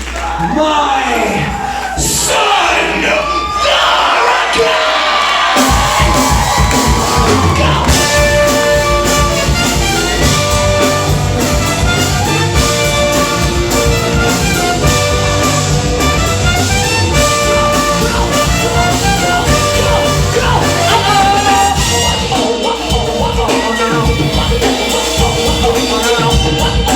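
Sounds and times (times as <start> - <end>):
drums: 0.0 - 26.9
brass horn section riff: 5.6 - 26.9
live band playing: 5.6 - 26.9.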